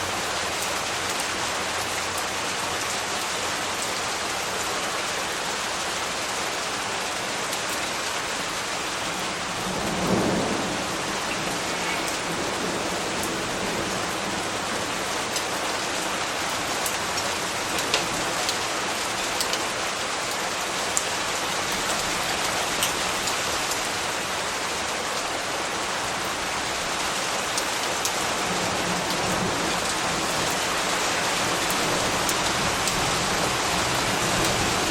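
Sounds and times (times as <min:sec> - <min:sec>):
sharp ticks of raindrops: 0:00.0 - 0:34.9
steady rain falling: 0:00.0 - 0:34.9
low rumble of thunder: 0:09.1 - 0:15.4.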